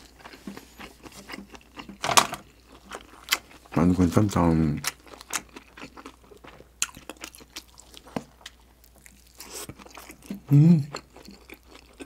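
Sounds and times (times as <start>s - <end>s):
chewing with wet mouth clicks: 4.8s - 12.0s
person humming: 10.4s - 10.9s.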